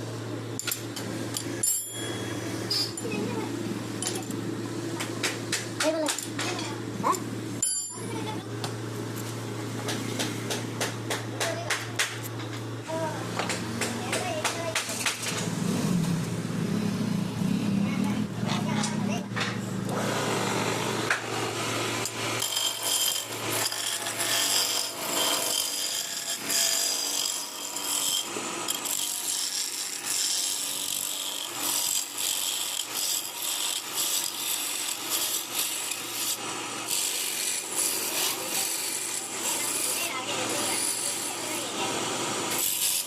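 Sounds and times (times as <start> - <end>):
tool scraping wood: 18.4 - 41.8.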